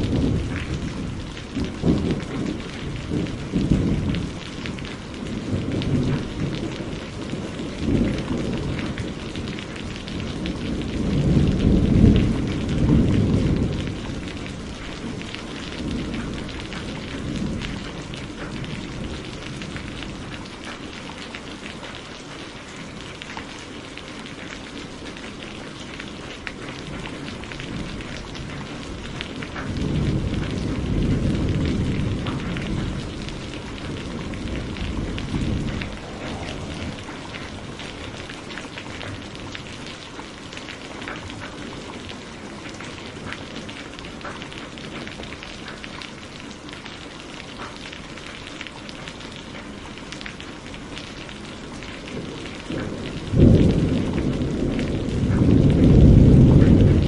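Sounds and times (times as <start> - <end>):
rolling low thunder: 0.0 - 21.8, 26.4 - 45.9, 49.1 - 57.0
rain pattering: 0.0 - 57.0.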